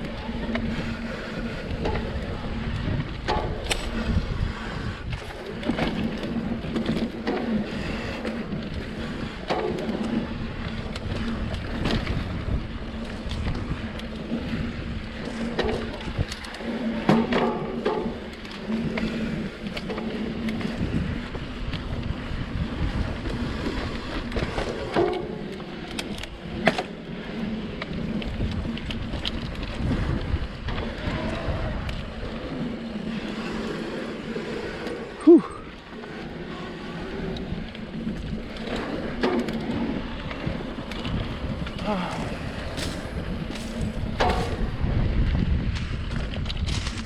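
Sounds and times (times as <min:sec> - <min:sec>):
bike knocking and rattling: 0:00.0 - 0:47.0
wind noise on microphone: 0:00.0 - 0:47.0
clicks and knocks from stones: 0:38.2 - 0:45.0, 0:45.7 - 0:47.0
tyre rumble on dirt: 0:38.3 - 0:47.0.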